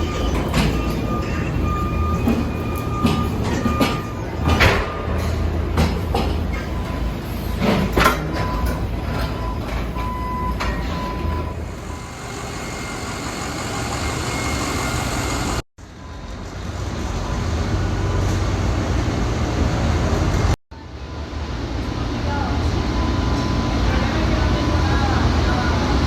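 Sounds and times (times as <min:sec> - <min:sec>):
vehicle engine and machinery noise: 0:00.0 - 0:26.0.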